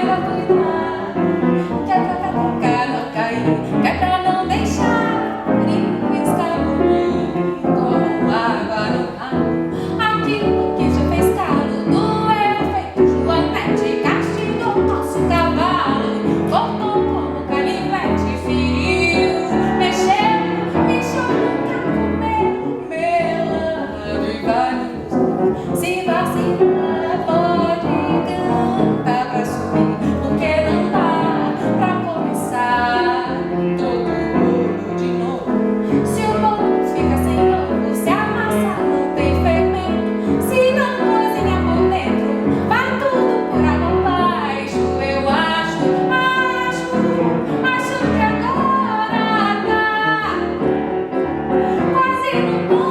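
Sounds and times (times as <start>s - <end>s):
woman singing: 0.0s - 50.9s, 51.5s - 52.9s
piano accompaniment: 0.0s - 52.9s.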